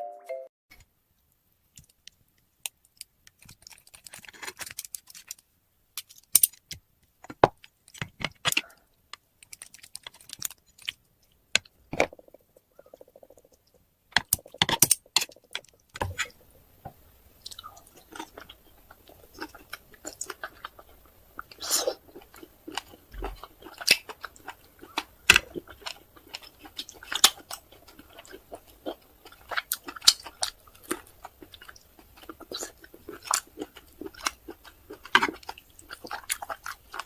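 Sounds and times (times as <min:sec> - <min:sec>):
close-miked chewing: 0:08.4 - 0:37.0
wet mouth sounds with clicks: 0:12.0 - 0:15.9.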